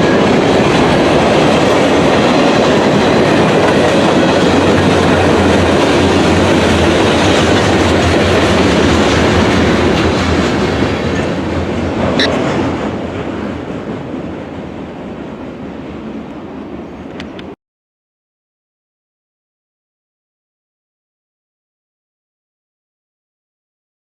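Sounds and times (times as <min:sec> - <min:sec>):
train wheels clattering over rails: 0:00.0 - 0:15.6.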